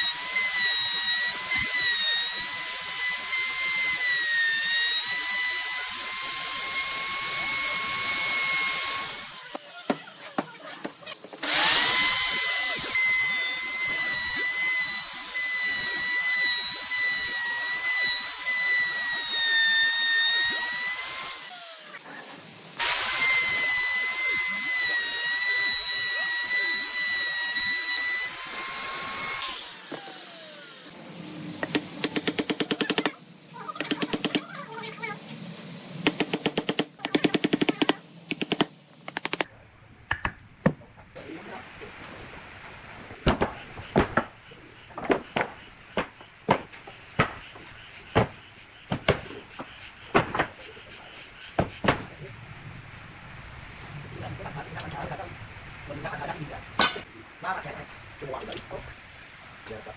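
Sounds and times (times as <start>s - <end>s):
electric power tool whining: 0.0s - 22.0s, 22.8s - 33.1s.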